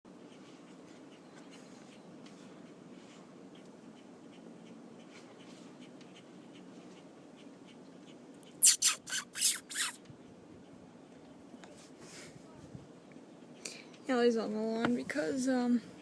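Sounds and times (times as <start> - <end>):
bird harsh alarm calls: 8.1 - 10.0.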